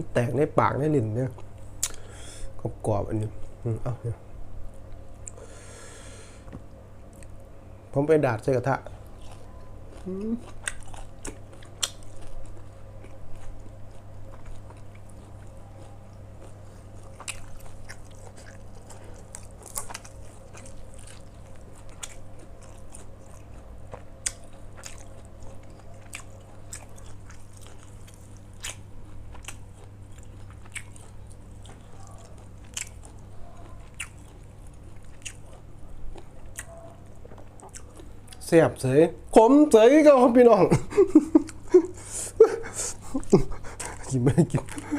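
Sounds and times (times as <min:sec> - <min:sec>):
person chewing crunchy food: 0:08.8 - 0:38.4, 0:41.0 - 0:44.9.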